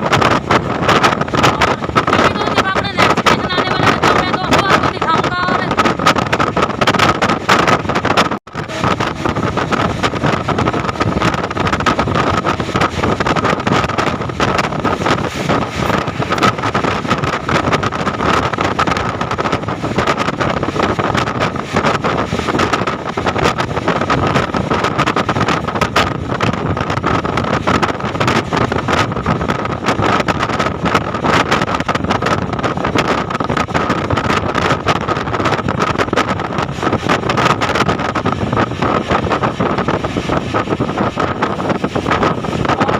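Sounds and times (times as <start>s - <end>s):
train wheels on track: 0.0s - 42.9s
steady high hum: 14.9s - 18.6s.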